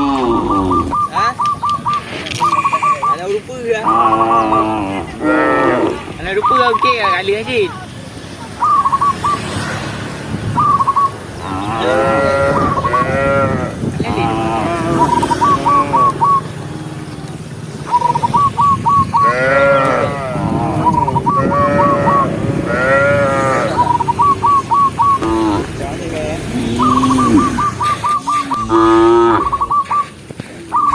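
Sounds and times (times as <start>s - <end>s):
cattle mooing: 0.0s - 1.0s, 3.8s - 6.2s, 11.4s - 17.4s, 19.2s - 24.1s, 25.1s - 29.9s.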